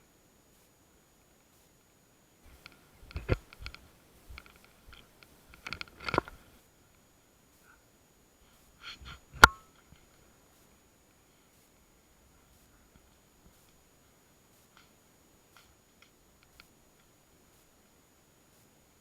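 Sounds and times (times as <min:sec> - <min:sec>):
short clicks and knocks: 0:09.4 - 0:09.7.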